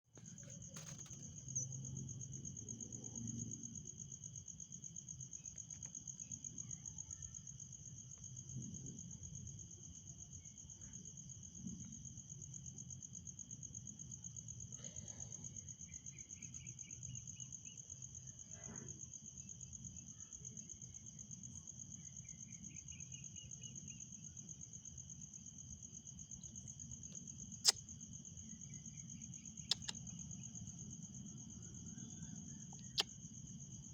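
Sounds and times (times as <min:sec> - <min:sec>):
high-pitched insect trill: 0:00.2 - 0:14.7, 0:15.5 - 0:33.9
sharp click: 0:29.7 - 0:30.0.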